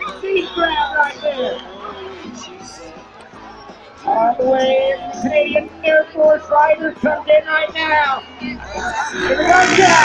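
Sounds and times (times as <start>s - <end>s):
high voice singing: 9.0s - 10.0s.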